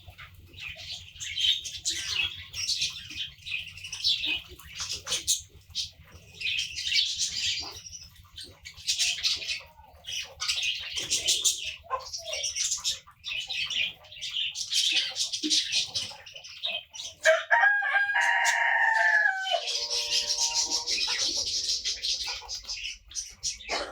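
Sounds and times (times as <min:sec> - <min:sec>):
small birds chirping: 0:00.0 - 0:23.9
rooster crowing: 0:17.2 - 0:21.4.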